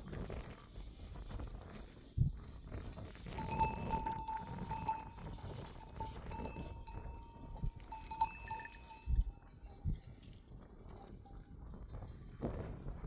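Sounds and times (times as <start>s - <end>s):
sheep bell clanking: 3.3s - 12.3s.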